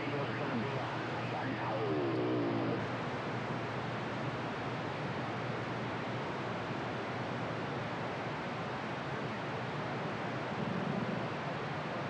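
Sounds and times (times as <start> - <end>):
radio static hiss: 0.0 - 3.0.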